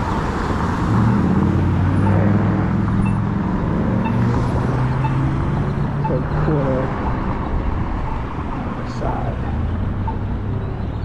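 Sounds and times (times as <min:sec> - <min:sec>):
motor vehicle humming: 0:00.0 - 0:11.0.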